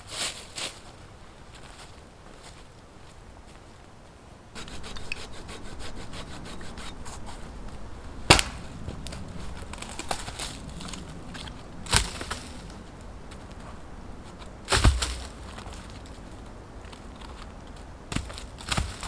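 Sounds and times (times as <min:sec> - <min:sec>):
hand saw rasping through wood: 0:04.6 - 0:08.8
sharp wooden knocks: 0:08.3 - 0:08.7, 0:14.7 - 0:15.5.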